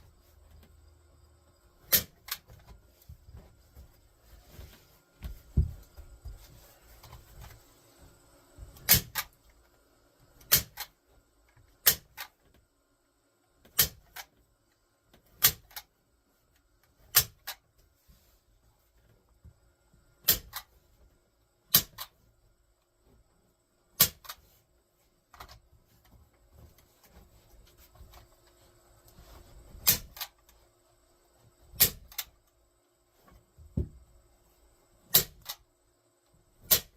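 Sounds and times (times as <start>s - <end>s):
staple gun firing into wood: 1.9s - 2.4s, 8.8s - 9.4s, 10.4s - 11.0s, 11.8s - 12.3s, 13.8s - 14.3s, 15.4s - 15.9s, 17.1s - 17.6s, 20.2s - 20.7s, 21.7s - 22.1s, 24.0s - 24.4s, 29.8s - 30.3s, 31.8s - 32.3s, 35.1s - 35.6s, 36.6s - 36.9s.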